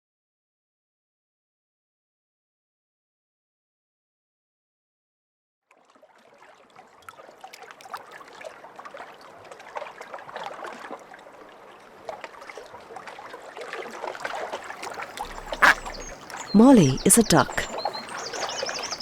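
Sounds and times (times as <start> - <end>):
babbling trickling stream: 14.6 - 19.0.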